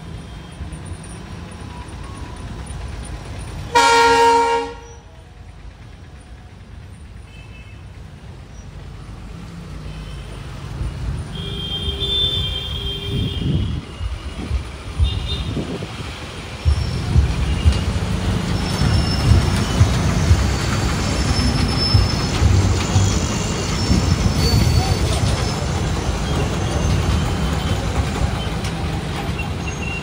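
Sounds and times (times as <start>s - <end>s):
train wheels rumbling on track: 0.0s - 30.0s
train knocks: 13.5s - 30.0s
high-pitched wheel squeals: 16.7s - 28.7s, 29.3s - 30.0s.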